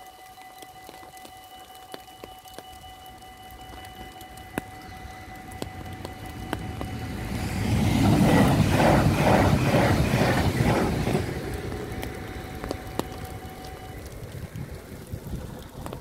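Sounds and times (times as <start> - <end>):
level crossing warning bells: 0.0 - 15.1
rhythmic clatter of wheels: 0.0 - 16.0
passenger train rushing past: 4.1 - 16.0.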